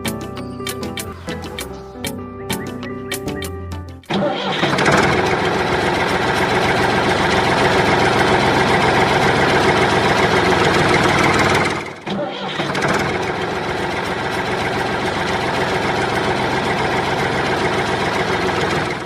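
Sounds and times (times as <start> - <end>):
background music: 0.0 - 4.5
motor running loud: 4.6 - 19.0.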